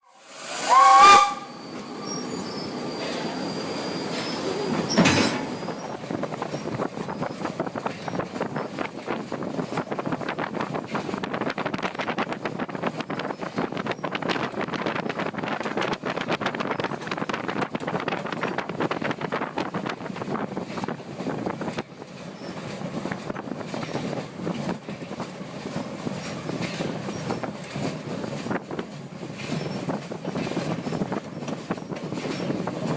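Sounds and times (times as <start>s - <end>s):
steam locomotive whistle: 0.0s - 4.8s
steam hiss: 0.0s - 6.0s
steam train running: 0.0s - 32.9s
train wheels clattering on rails: 1.3s - 32.9s.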